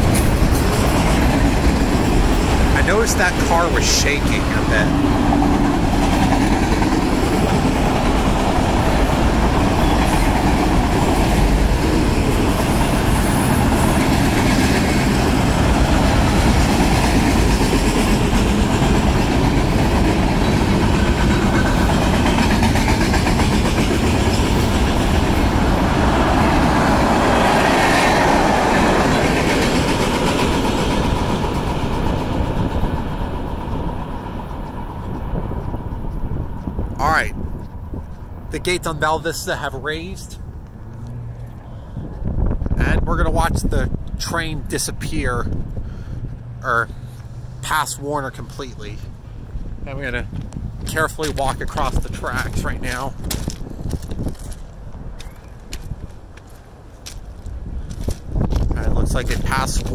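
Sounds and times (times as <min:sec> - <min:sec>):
freight cars rumbling on rails: 0:00.0 - 0:59.9.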